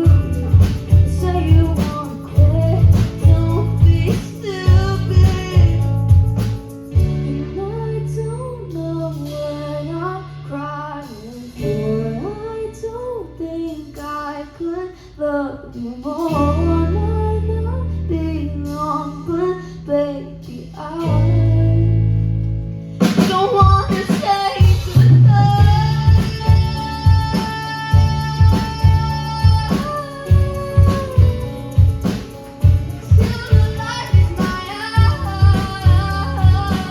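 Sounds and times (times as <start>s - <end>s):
guitar strumming: 0.0s - 13.2s, 21.2s - 36.9s
woman singing: 0.0s - 22.2s, 23.0s - 36.9s.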